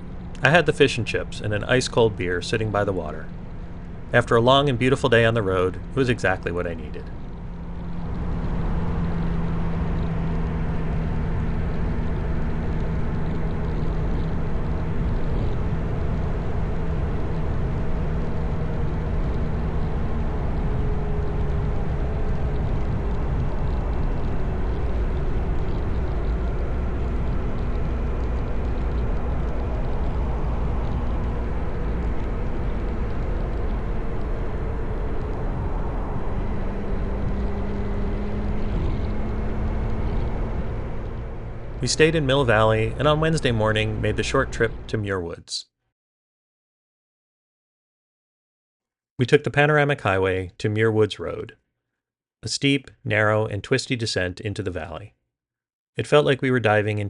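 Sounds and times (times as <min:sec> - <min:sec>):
motorcycle engine running: 0:00.0 - 0:45.0
wind and road noise: 0:00.0 - 0:45.1.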